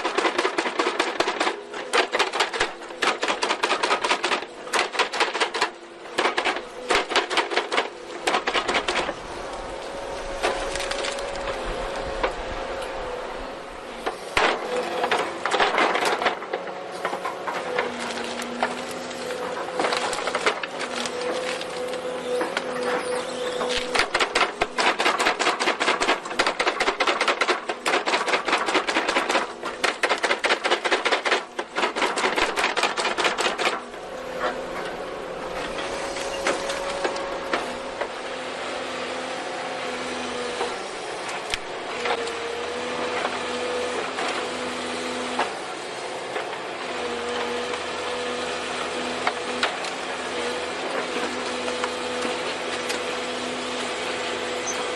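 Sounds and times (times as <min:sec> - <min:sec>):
machinery whine: 0:07.9 - 0:24.1, 0:33.7 - 0:44.5.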